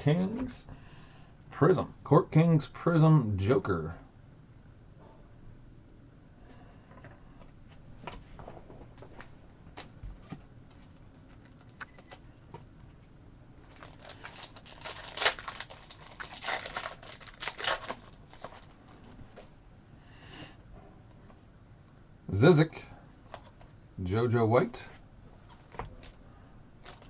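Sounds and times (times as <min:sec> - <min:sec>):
foil pack crinkling: 0:13.6 - 0:19.2, 0:25.5 - 0:26.2, 0:26.8 - 0:27.0.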